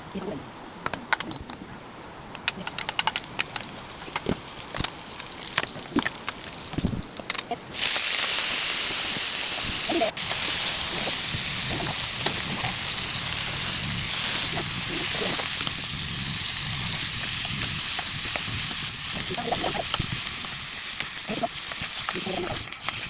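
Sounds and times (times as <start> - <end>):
chicken sizzling in a pot: 7.7 - 23.0.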